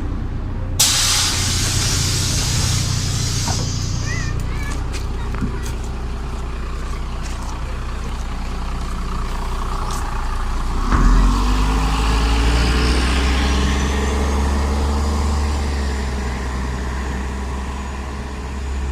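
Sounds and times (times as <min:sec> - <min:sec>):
bus diesel engine drone: 0:00.0 - 0:18.9
sharp pneumatic hiss: 0:00.8 - 0:04.2.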